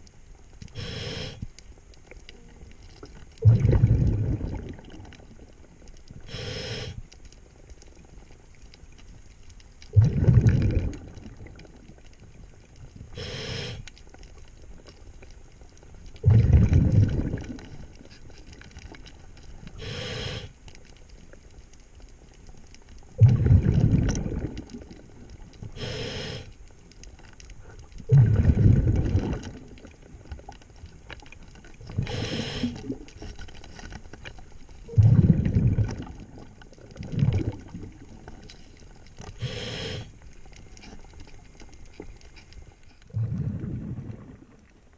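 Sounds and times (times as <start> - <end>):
regulator inhale hiss: 0.7 - 1.6, 6.2 - 7.2, 13.1 - 14.0, 19.7 - 20.6, 25.7 - 26.6, 31.9 - 33.0, 39.2 - 40.2
exhaust bubbles bursting: 3.4 - 5.1, 9.9 - 11.6, 16.2 - 17.7, 23.2 - 25.0, 28.1 - 29.8, 34.9 - 38.1, 43.1 - 44.7.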